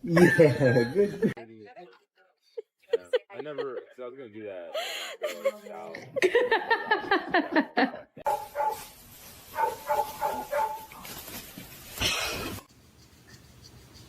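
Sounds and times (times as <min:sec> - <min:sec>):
dog yipping and barking: 0:08.3 - 0:08.8, 0:09.5 - 0:10.9.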